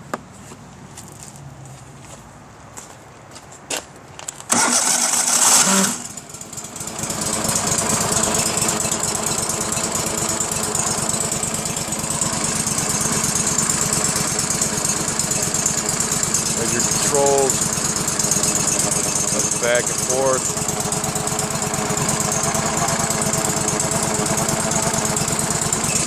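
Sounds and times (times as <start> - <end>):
engine starter clicks: 4.4 - 6.3
starter cranking: 4.5 - 26.0
stump grinder engine running: 4.5 - 26.0.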